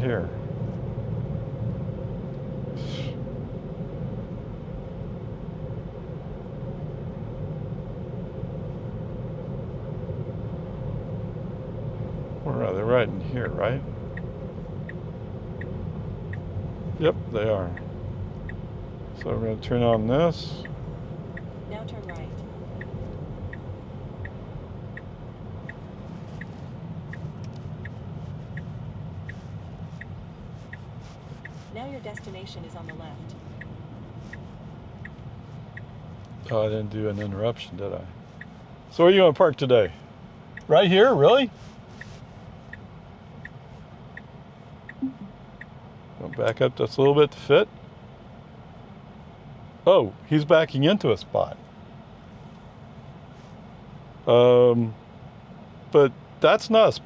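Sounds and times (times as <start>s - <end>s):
road and tyre rumble: 0.0s - 57.0s
turn signal ticking: 11.0s - 37.7s, 38.3s - 39.7s, 40.4s - 40.8s, 41.4s - 46.6s.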